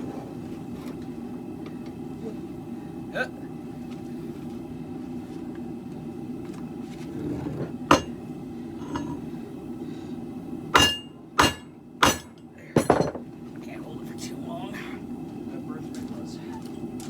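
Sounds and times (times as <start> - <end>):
hammer striking steel: 7.9 - 8.2, 10.7 - 13.1.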